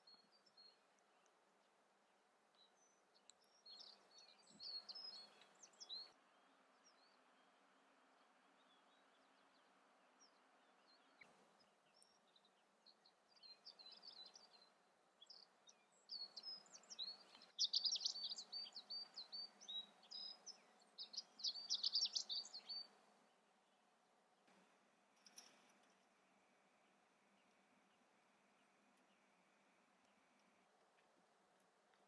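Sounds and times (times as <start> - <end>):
faint outdoor hiss: 0.0 - 32.0
songbird twittering: 2.6 - 7.6, 8.5 - 23.0.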